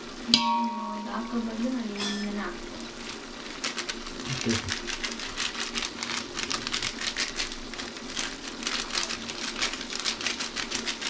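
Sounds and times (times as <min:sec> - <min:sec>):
chicken frying in hot oil: 0:00.0 - 0:11.0
spice packet rustling: 0:02.6 - 0:11.0.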